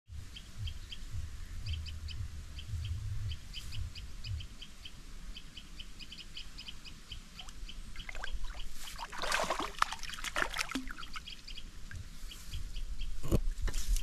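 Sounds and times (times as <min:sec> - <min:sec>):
low rumble: 0:00.1 - 0:04.6
bird chirping: 0:00.2 - 0:13.3.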